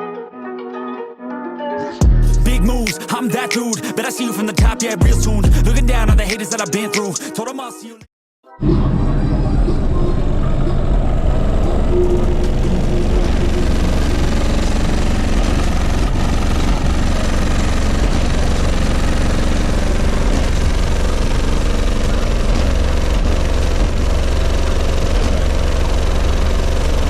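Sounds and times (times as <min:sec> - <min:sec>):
deep bass music from car speakers: 0:02.0 - 0:03.0, 0:04.6 - 0:06.8, 0:08.6 - 0:27.0
noisy buzz: 0:08.6 - 0:27.0.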